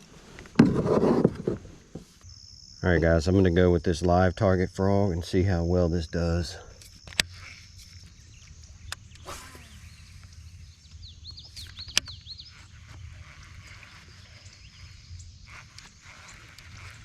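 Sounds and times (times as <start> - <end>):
bird chirping: 7.3 - 17.0.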